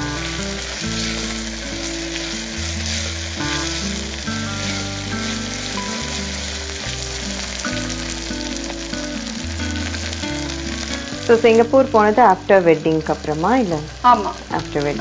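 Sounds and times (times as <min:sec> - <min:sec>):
background music with bass: 0:00.0 - 0:15.0
onions sizzling in hot oil: 0:00.0 - 0:15.0.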